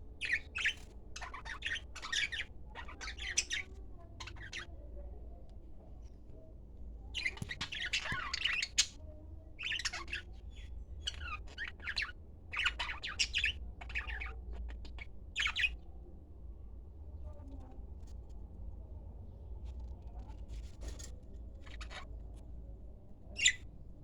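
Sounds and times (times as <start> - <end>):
small bird chirping: 0.1 - 4.9, 7.0 - 15.9, 20.1 - 22.4, 23.2 - 23.7.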